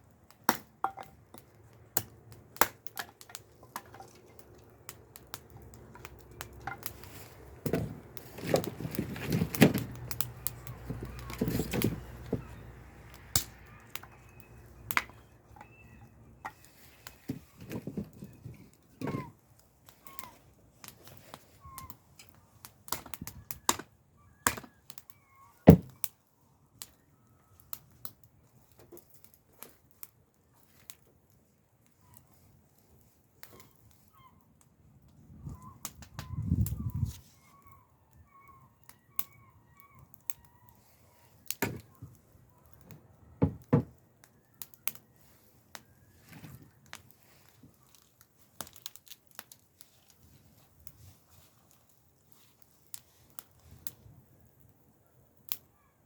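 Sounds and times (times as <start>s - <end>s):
faint bird chirps: 13.7s - 17.3s, 24.2s - 25.6s, 35.3s - 41.3s.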